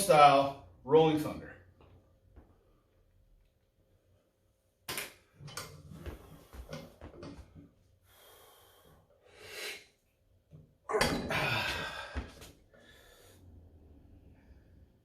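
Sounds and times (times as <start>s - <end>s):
man breathing forcefully: 8.0s - 10.0s, 11.3s - 13.6s
man straining: 10.9s - 12.5s.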